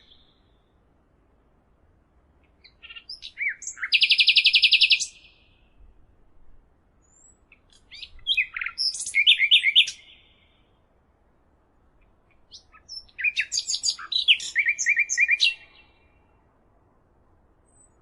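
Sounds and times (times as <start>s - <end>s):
songbird chirping and trilling: 2.4s - 5.8s, 7.0s - 10.8s, 12.0s - 16.4s.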